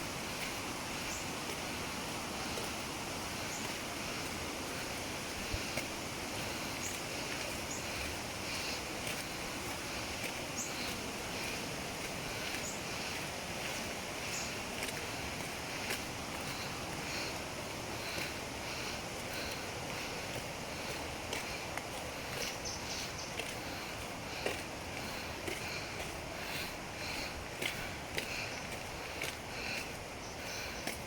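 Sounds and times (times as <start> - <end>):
waterfall and stream rushing: 0.0 - 31.0.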